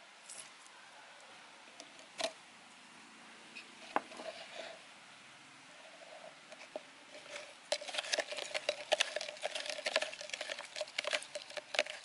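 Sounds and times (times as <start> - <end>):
metal spoon scraping container: 5.9 - 12.0.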